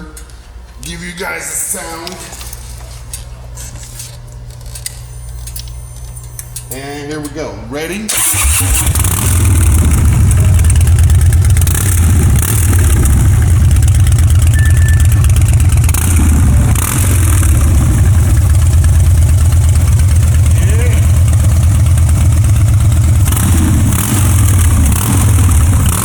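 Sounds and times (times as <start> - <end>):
motorcycle engine starting and idling: 8.1 - 26.0.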